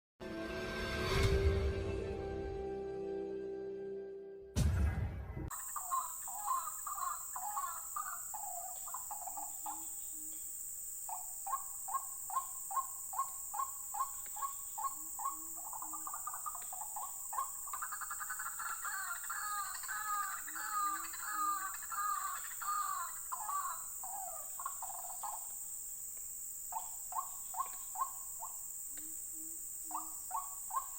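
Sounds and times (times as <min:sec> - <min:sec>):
waterhens croaking: 0:05.5 - 0:09.8, 0:11.2 - 0:25.5
steady high hiss: 0:05.5 - 0:30.9.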